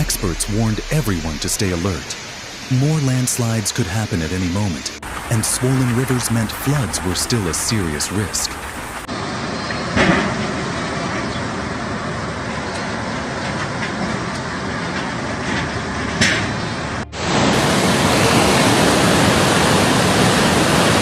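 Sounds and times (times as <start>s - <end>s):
loud rushing noise: 0.0s - 3.2s.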